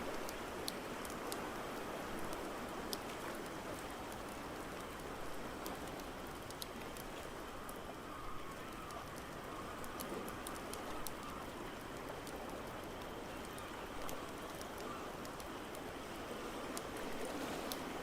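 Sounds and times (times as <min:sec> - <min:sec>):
ocean waves: 0:09.0 - 0:18.0.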